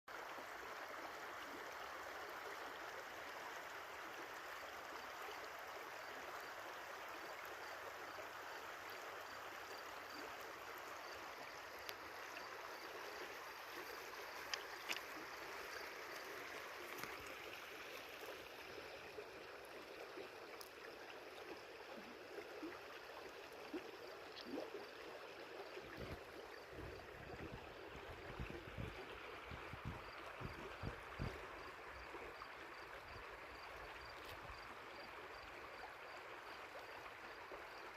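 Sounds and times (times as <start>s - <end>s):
stream flowing over stones: 0.1s - 37.9s
faint clicks: 14.4s - 15.1s.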